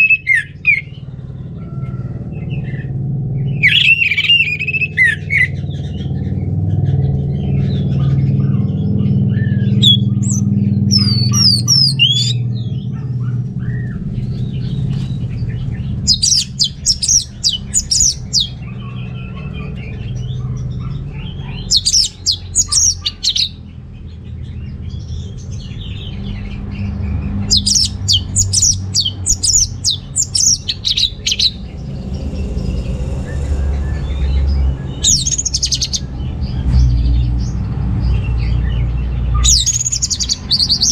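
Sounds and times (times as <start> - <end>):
thrush singing: 0.0 - 1.1, 2.3 - 6.1, 7.2 - 23.6, 27.2 - 36.6
steady low rumble: 0.0 - 40.9.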